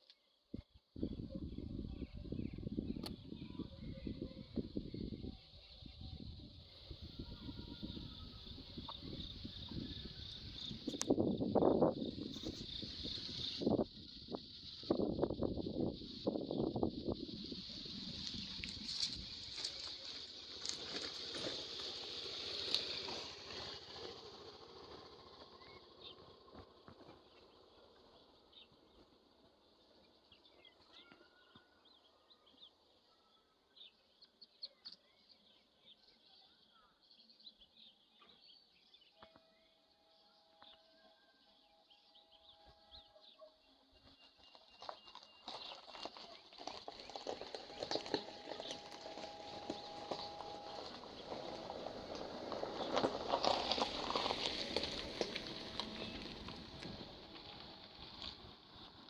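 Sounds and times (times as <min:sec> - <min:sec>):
insects and birds calling: 0:00.0 - 0:59.0
small birds chirping: 0:41.7 - 0:59.0.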